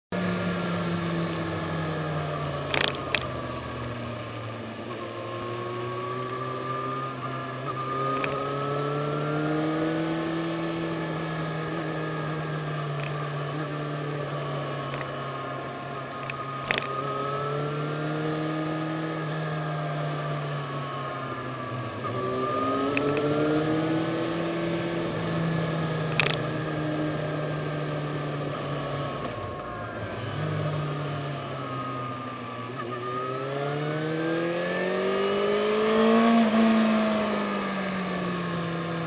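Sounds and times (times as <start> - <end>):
motorcycle engine running: 0.2 - 39.0
sharp clicks: 2.6 - 3.8, 8.1 - 8.4, 16.2 - 17.0, 22.9 - 23.3, 26.1 - 26.5.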